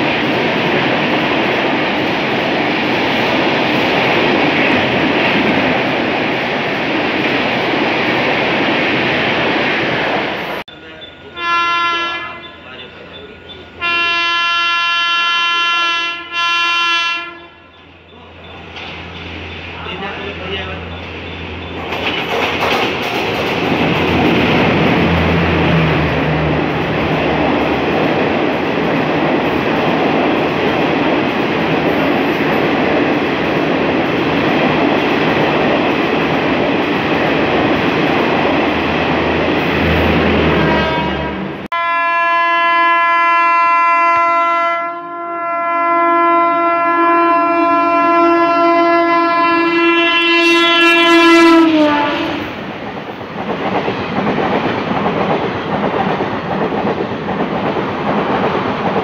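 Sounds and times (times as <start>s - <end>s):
express train passing at speed: 0.0s - 59.0s
train horn: 11.3s - 17.8s, 40.1s - 52.5s.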